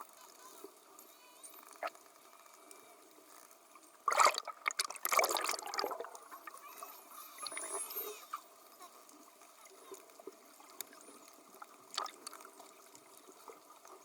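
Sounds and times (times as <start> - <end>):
water splashing: 4.0 - 6.7, 11.8 - 12.7
gentle water sloshing: 4.0 - 8.0, 10.1 - 14.0.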